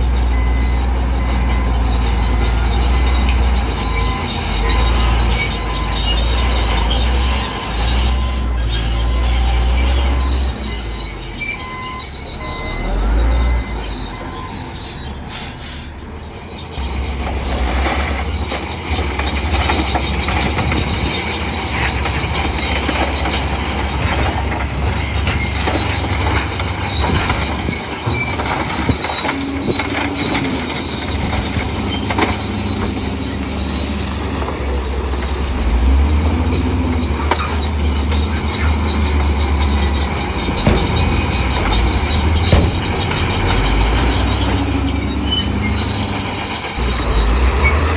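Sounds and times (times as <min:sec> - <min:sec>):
crawler tracks squealing and clanking: 0:00.0 - 0:47.9
diesel engine rumbling: 0:00.0 - 0:47.9
knocks: 0:40.6 - 0:44.2.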